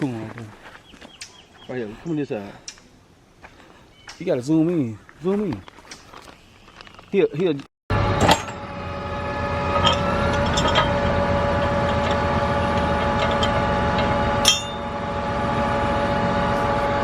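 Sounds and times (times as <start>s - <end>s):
farm machinery engine running: 7.9s - 17.0s.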